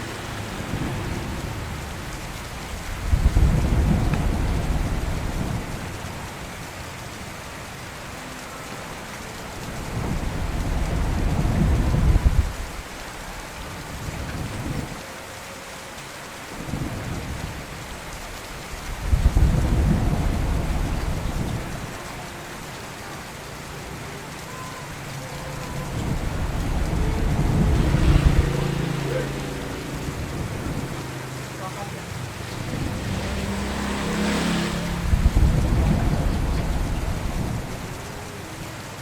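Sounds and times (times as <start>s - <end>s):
thunder rumbling: 0.0s - 15.4s, 16.3s - 39.0s
steady rain: 0.0s - 39.0s.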